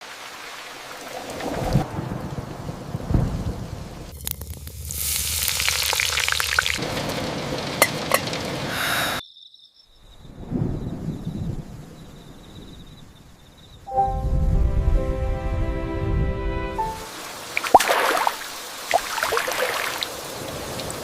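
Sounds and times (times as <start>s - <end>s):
heavy rain hissing: 0.0s - 9.2s, 16.8s - 21.0s
thunder rumbling: 1.0s - 8.7s, 10.3s - 13.3s, 13.9s - 16.5s
raindrop clicks: 4.1s - 8.7s.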